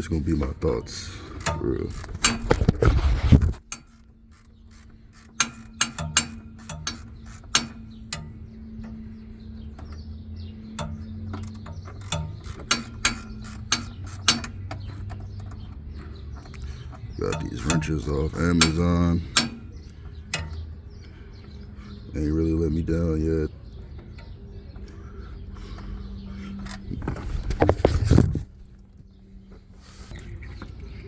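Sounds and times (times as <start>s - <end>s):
steady low hum: 0.0s - 31.0s
ratchet wrench clicking: 0.9s - 2.9s, 3.6s - 9.0s, 10.8s - 14.9s, 17.2s - 20.6s
loud scraping: 1.5s - 3.7s.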